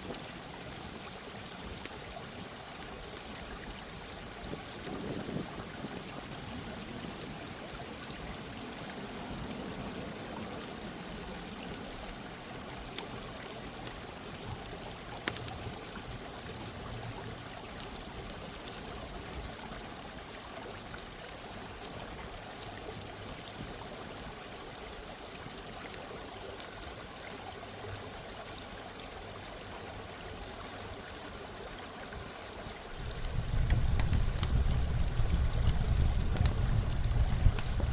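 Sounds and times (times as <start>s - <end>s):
campfire crackling and popping: 0.0s - 2.2s, 3.1s - 3.9s, 12.8s - 16.8s, 32.9s - 37.9s
stream water running: 0.0s - 37.9s
low rumble: 33.0s - 37.9s.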